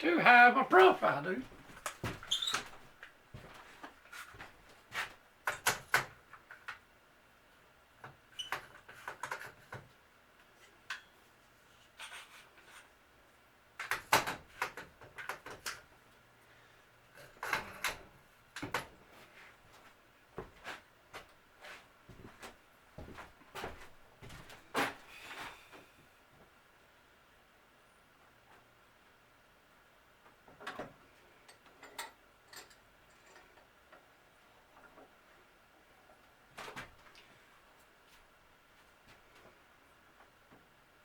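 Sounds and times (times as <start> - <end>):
tools clattering on a workbench: 30.5 - 33.7.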